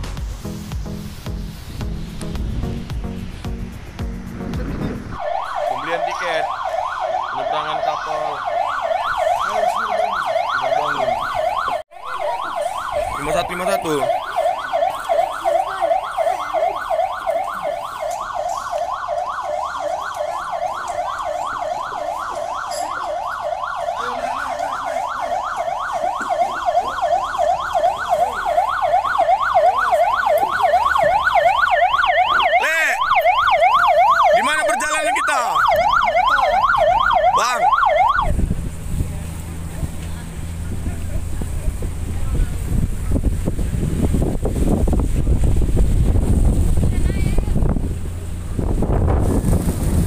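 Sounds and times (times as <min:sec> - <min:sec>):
faint voices: 0:04.4 - 0:44.4
electronic siren yelping: 0:05.1 - 0:38.5.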